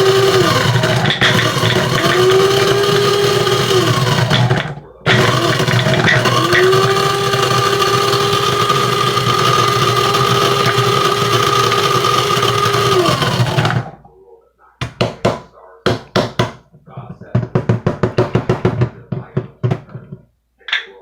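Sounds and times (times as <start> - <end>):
coffee grinder whirring: 0.0 - 14.0
sharp knocks: 14.8 - 20.2.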